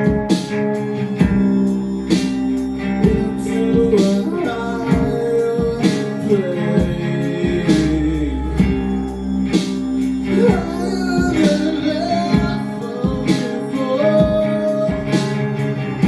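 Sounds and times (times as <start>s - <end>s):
acoustic guitars strummed: 0.0s - 16.0s
bass line: 0.0s - 16.0s
person singing: 0.0s - 16.0s.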